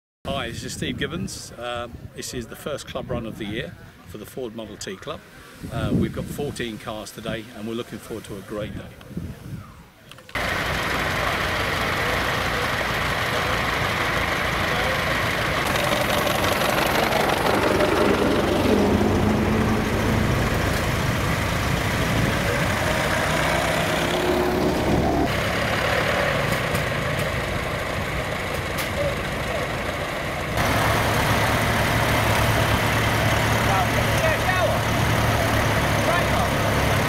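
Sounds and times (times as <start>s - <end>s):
old car engines running slowly: 10.4s - 37.0s.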